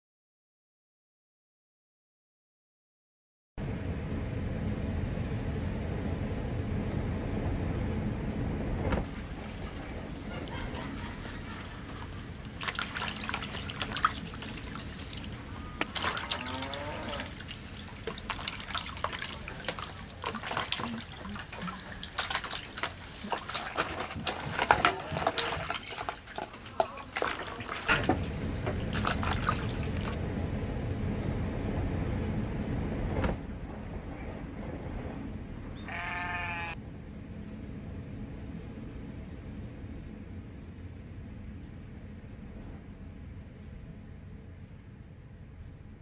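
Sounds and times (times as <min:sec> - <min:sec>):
low rush of wind: 0:03.6 - 0:12.6, 0:28.1 - 0:46.0
water splashing in a basin: 0:09.1 - 0:30.2.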